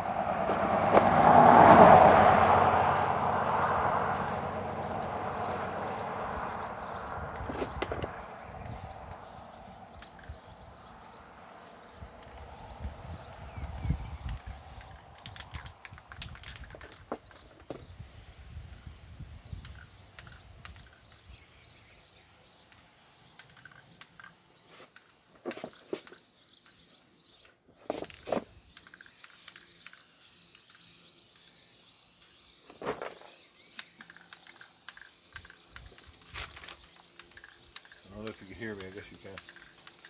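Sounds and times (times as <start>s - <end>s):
high-pitched insect drone: 0.0s - 14.9s, 28.2s - 40.0s.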